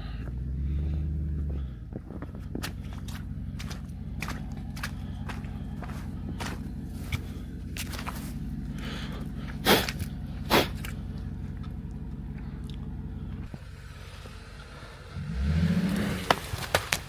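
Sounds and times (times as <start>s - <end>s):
car engine idling: 0.0s - 17.0s
engine revving: 0.0s - 17.0s.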